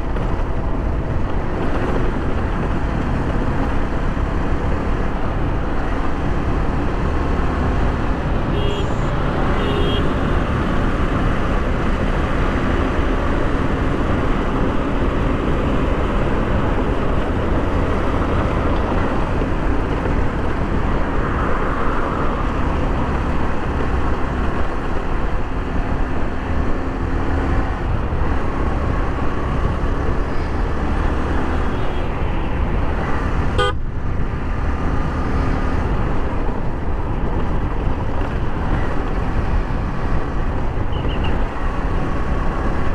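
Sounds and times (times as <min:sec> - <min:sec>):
traffic: 0:00.0 - 0:42.9
wind and road noise: 0:00.0 - 0:42.9
vehicle horns: 0:08.4 - 0:10.6, 0:31.5 - 0:32.1, 0:33.6 - 0:33.8, 0:40.9 - 0:41.5.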